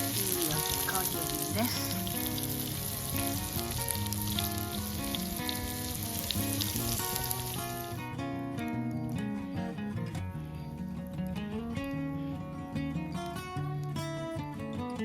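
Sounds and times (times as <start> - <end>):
mushrooms sizzling in butter: 0.0 - 8.0
background music with plucked notes: 0.0 - 15.0.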